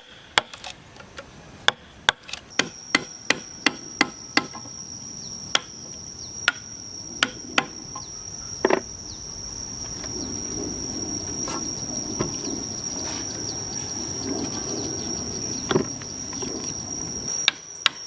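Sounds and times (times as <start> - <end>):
high insect trill: 0.0 - 18.0.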